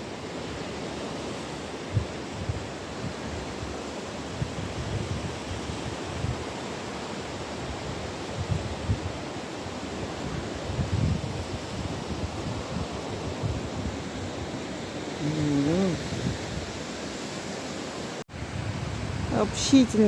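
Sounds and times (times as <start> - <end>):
waves washing on shore: 0.0 - 20.0
wind buffeting microphone: 1.6 - 20.0.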